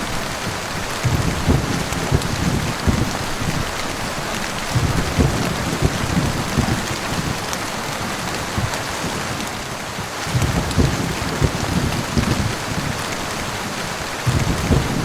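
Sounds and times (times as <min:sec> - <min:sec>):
heavy rain hissing: 0:00.0 - 0:15.0
short low thuds: 0:01.0 - 0:03.2, 0:04.8 - 0:06.8, 0:14.3 - 0:15.0.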